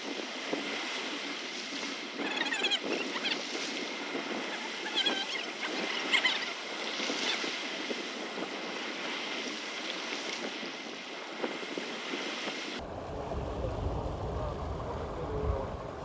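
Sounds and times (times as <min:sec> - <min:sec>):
water splashing and lapping: 0:00.0 - 0:12.8
wind noise: 0:00.0 - 0:16.0.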